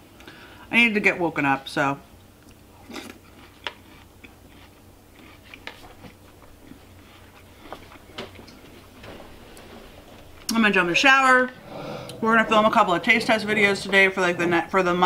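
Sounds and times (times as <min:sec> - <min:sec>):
chewing cereal crunches: 0:02.4 - 0:08.7
soft mouth sounds: 0:11.6 - 0:12.4.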